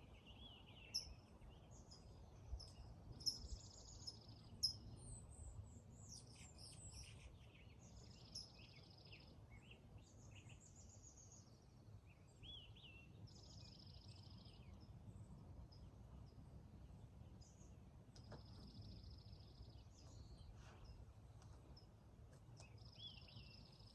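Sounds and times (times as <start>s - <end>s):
birds chirping: 22.5s - 23.9s.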